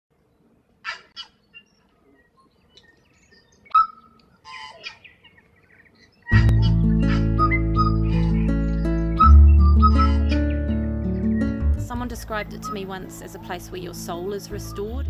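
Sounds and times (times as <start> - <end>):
birds calling: 0.7 - 15.0
bird chattering: 6.3 - 10.7
background music: 6.4 - 15.0.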